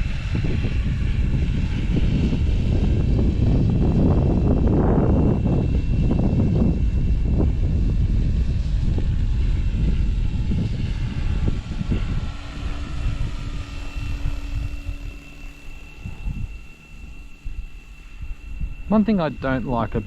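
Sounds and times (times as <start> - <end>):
low rumbling buffeting: 0.0 - 20.0
low steady hum: 0.0 - 20.0
rc helicopter motor whine: 0.0 - 20.0.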